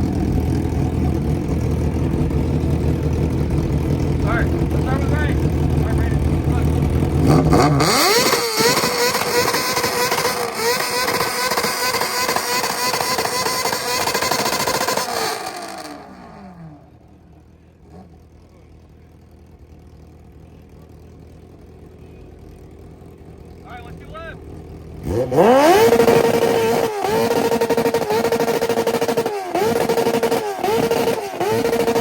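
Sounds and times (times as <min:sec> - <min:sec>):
car engine revving on limiter: 0:01.4 - 0:16.9, 0:25.0 - 0:32.0.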